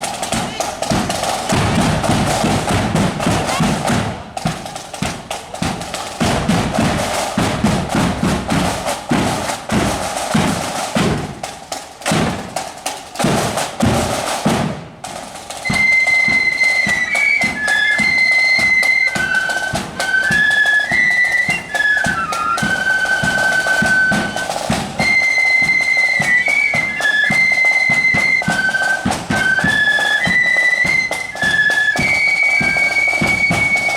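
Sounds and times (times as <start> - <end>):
snare and bass drums: 0.0 - 33.9
shrill flute melody: 15.6 - 33.9.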